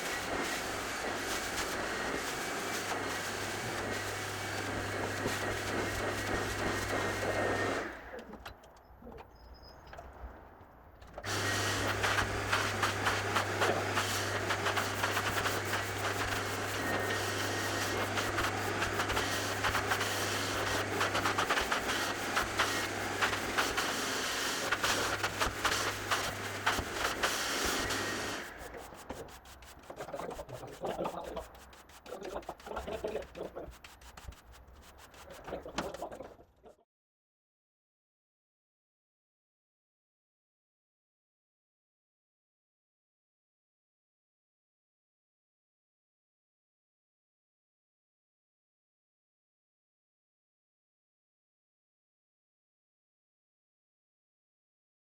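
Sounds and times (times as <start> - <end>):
carpet cleaning machine scrubbing: 0.0 - 8.4, 11.2 - 36.3
rubbing and scuffing strokes: 11.3 - 36.3.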